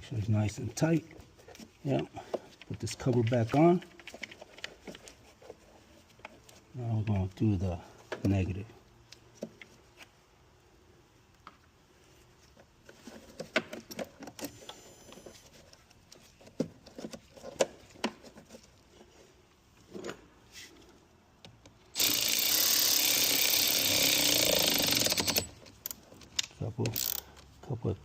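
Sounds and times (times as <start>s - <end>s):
tools clicking and knocking: 13.2s - 14.6s, 21.4s - 27.5s
cordless power tool running: 22.0s - 25.5s.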